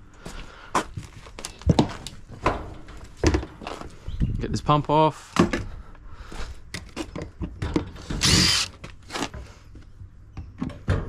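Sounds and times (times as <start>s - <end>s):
power drill whirring: 8.1s - 8.8s.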